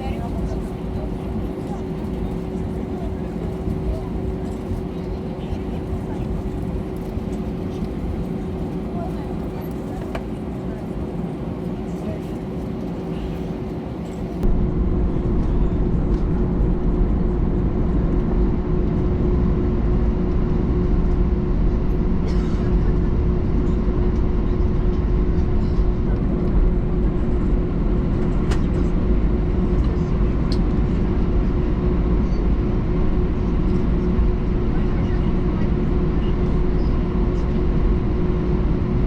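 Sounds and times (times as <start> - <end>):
aircraft cabin engine rumble: 0.0 - 39.0
constant hum: 0.0 - 39.0.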